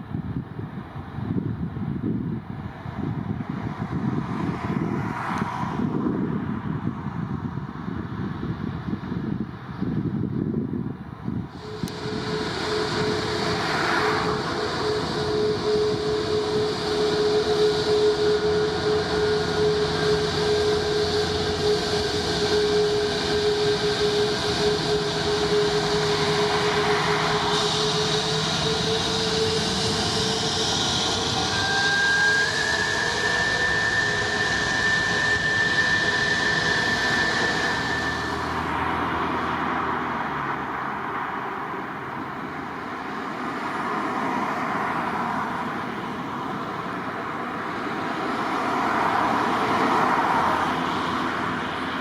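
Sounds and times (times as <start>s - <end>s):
jet engines whining: 11.3s - 52.0s.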